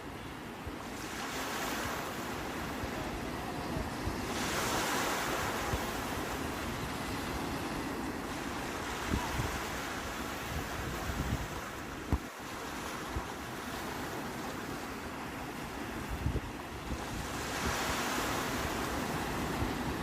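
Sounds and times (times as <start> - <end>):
sea waves washing on shore: 0.0 - 20.0
wind buffeting microphone: 2.6 - 13.5, 15.6 - 20.0.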